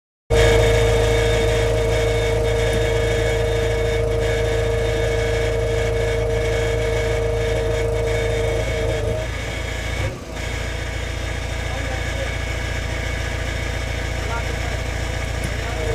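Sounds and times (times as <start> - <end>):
high whine: 0.3 - 9.5
diesel engine running: 0.3 - 15.9.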